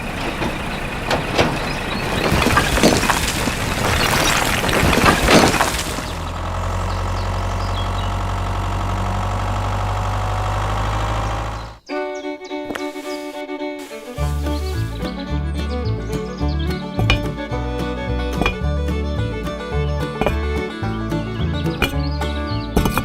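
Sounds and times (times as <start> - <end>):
crashing breaking impacts: 0.0 - 6.6
engine idling: 0.0 - 11.9, 13.6 - 23.0.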